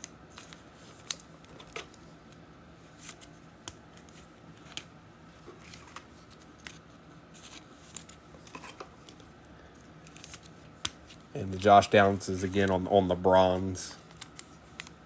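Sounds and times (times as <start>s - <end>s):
trading cards clicking and flicking: 0.0s - 2.4s, 7.4s - 15.0s.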